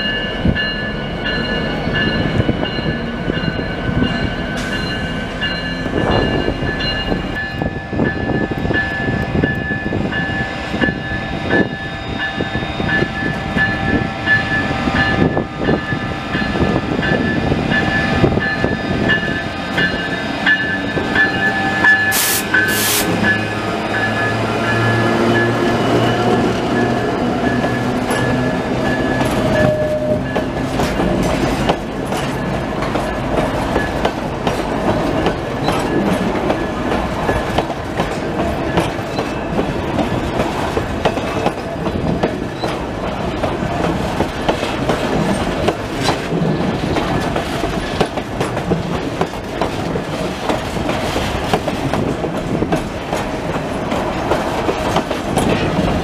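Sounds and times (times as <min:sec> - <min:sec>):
diesel locomotive engine hum: 0:00.0 - 0:56.0
train wheels clicking over rail joints: 0:16.4 - 0:56.0.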